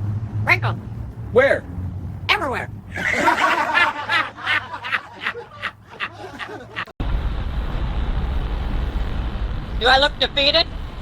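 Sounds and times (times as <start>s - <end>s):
snickering laughter: 2.9s - 6.9s.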